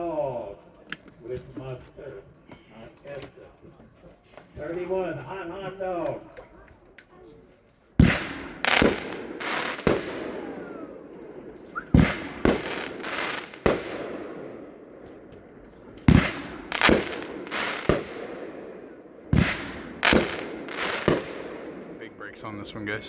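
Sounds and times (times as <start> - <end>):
fireworks shots: 8.0 - 22.4.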